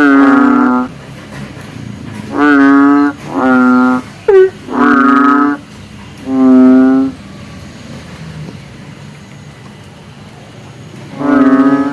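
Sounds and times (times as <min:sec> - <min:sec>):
frog deep call: 0:00.0 - 0:01.0, 0:02.3 - 0:07.3, 0:11.1 - 0:11.9.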